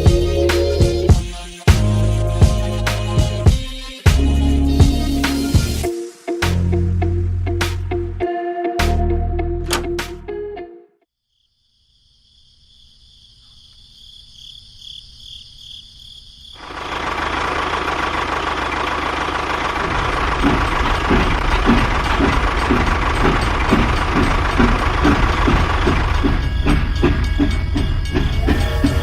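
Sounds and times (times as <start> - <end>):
engine running: 16.6 - 29.0
low rumble: 19.6 - 29.0.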